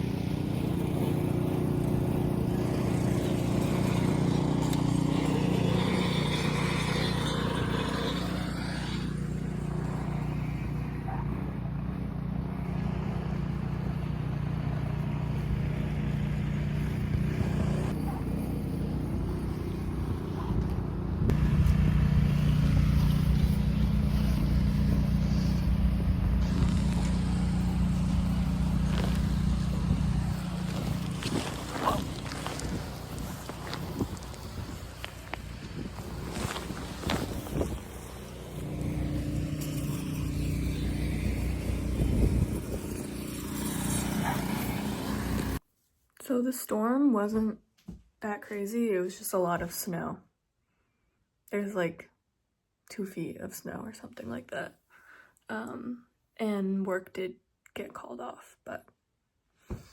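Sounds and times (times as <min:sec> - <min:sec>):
engine running: 0:00.0 - 0:45.6.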